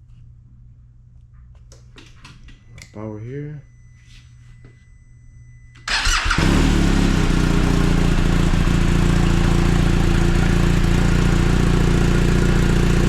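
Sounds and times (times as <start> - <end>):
motorcycle starter cranking: 5.8 - 7.5
motorcycle engine idling: 5.9 - 13.0.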